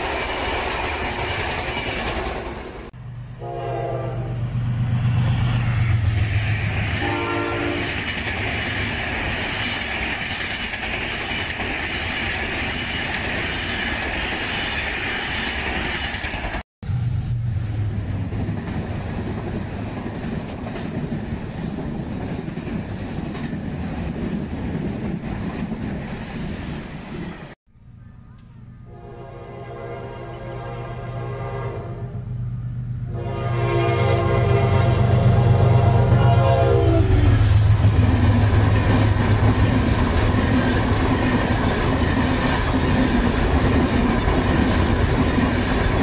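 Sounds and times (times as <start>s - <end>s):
train coaches rumbling on rails: 0.0s - 27.6s, 30.2s - 46.0s
train horn blasts: 3.4s - 4.6s, 7.0s - 8.0s, 28.9s - 32.3s, 33.1s - 37.8s.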